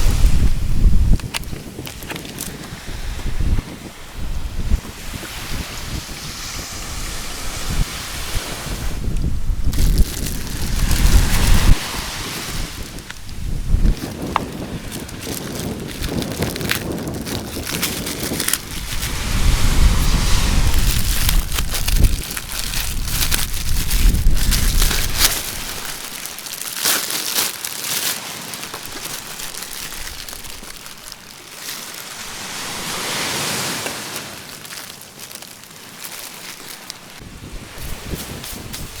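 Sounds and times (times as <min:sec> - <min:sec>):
wind buffeting microphone: 0:00.0 - 0:26.8, 0:28.7 - 0:31.1, 0:37.0 - 0:39.0
surf washing onto beach: 0:00.0 - 0:39.0
short crackles: 0:01.1 - 0:03.3, 0:09.7 - 0:32.2.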